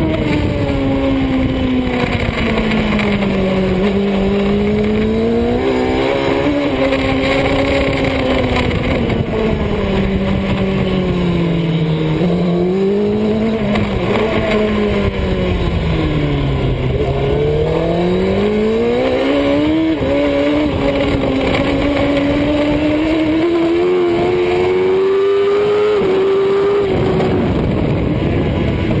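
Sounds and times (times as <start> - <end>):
motorbike engine at speed: 0.0 - 29.0.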